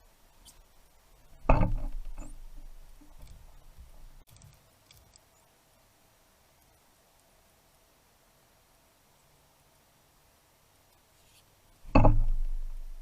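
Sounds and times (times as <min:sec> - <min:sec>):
knocking and rustling: 0:01.4 - 0:05.1, 0:11.9 - 0:13.0
sudden thump: 0:11.9 - 0:12.8.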